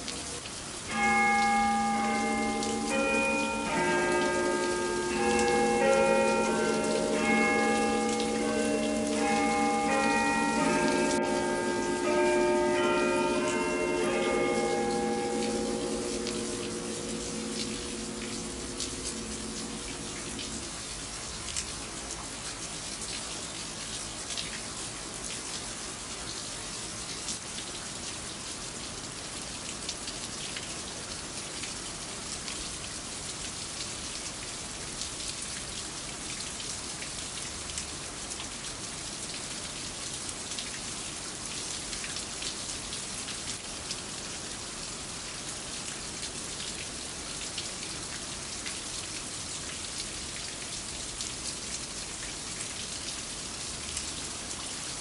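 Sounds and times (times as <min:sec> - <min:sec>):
rain falling: 0:00.0 - 0:55.0
struck bell hum: 0:01.0 - 0:20.6.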